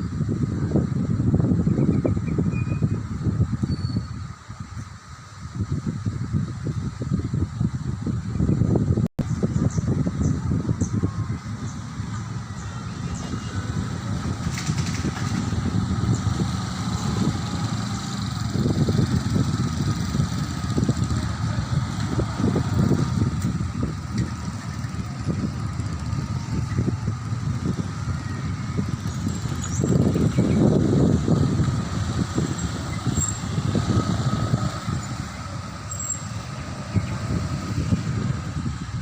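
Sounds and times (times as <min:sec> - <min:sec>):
airplane rumble passing overhead: 0:09.4 - 0:39.0.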